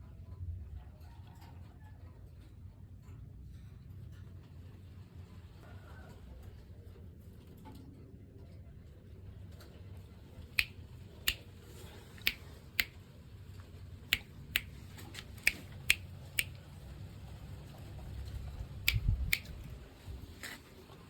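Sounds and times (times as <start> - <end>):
sharp single clicks: 10.6 - 11.4, 12.2 - 12.9, 14.1 - 16.6, 18.9 - 19.7.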